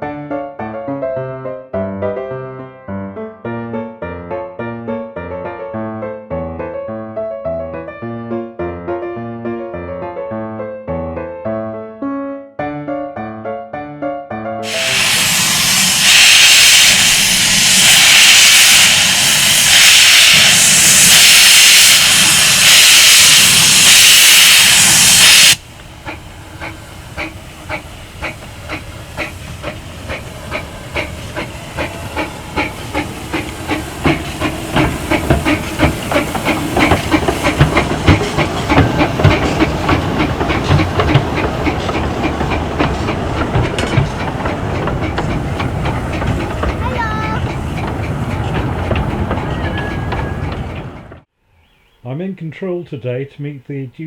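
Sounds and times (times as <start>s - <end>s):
steam locomotive hissing: 14.6s - 51.3s
train clattering on tracks: 14.6s - 51.3s.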